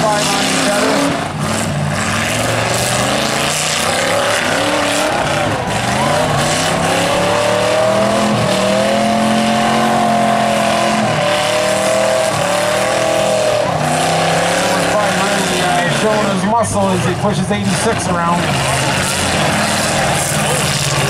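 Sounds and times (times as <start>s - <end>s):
truck engines revving hard: 0.0s - 21.0s.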